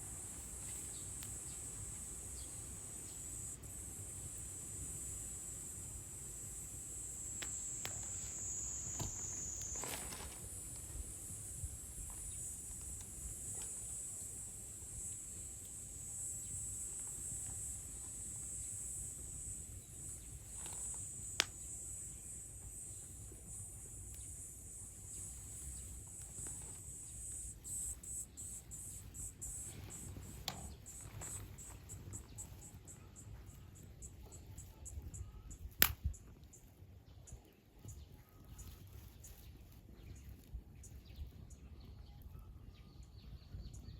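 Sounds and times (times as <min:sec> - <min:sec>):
high-pitched insect chorus trilling: 0:00.0 - 0:35.7
sharp snaps: 0:20.6 - 0:21.7, 0:35.7 - 0:36.3.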